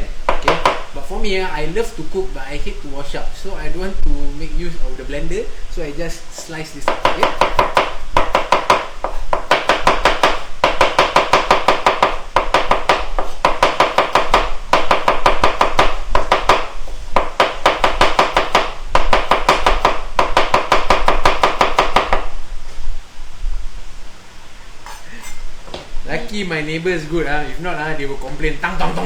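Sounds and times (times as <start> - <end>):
knife chopping on cutting board: 0.3 - 0.9, 6.4 - 22.3.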